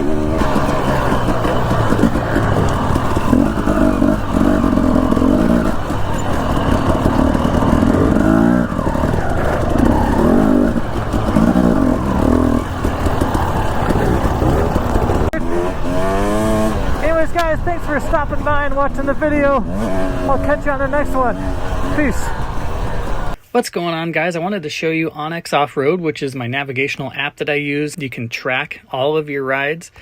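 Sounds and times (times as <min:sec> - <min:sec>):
dirt bike engine accelerating: 0:00.0 - 0:23.4.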